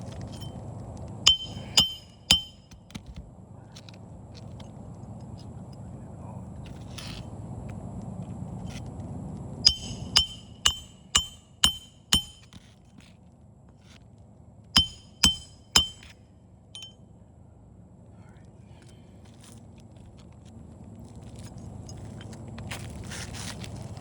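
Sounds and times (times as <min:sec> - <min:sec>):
hammer striking metal: 0:01.3 - 0:02.8, 0:09.6 - 0:12.6, 0:14.8 - 0:16.2, 0:16.8 - 0:17.0.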